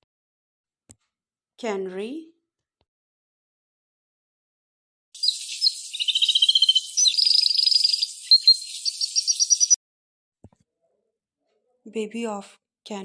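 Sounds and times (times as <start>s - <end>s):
canary singing trills: 5.2s - 9.8s.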